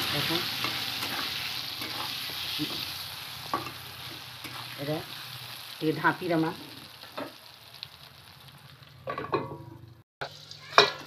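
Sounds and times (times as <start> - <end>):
vegetables sizzling in oil: 0.0 - 11.0
metal spatula scraping pan: 0.1 - 4.8
metal lid clattering on pan: 9.1 - 9.7.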